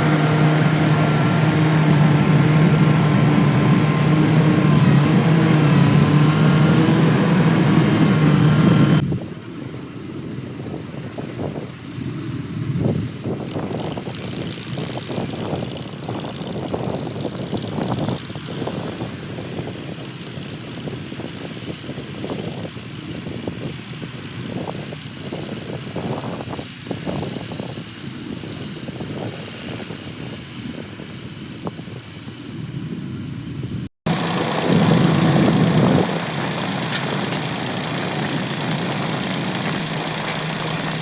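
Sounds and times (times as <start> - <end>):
harvester engine droning: 0.0 - 9.0, 34.1 - 41.0.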